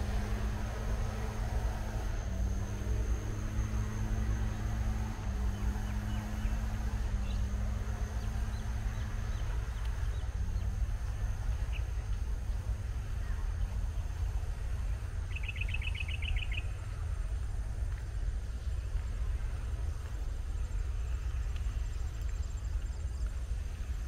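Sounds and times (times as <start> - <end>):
low outdoor rumble: 0.0 - 24.0
bird chirping and trilling: 15.3 - 16.8.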